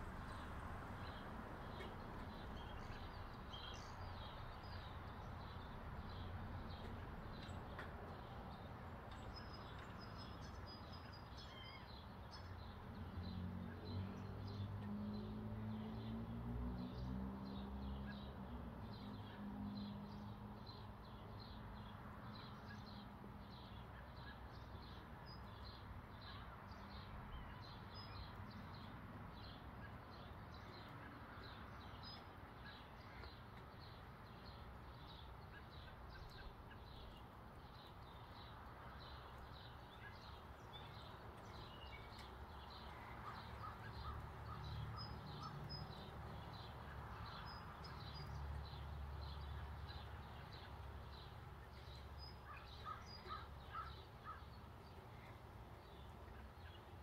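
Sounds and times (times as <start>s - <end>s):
birds chirping: 29.5s - 57.0s.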